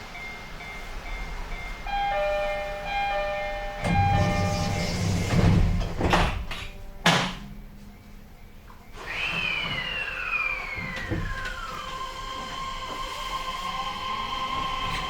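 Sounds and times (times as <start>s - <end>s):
two-note door chime: 1.9s - 9.1s
sliding doors closing: 2.2s - 7.6s, 8.9s - 15.0s.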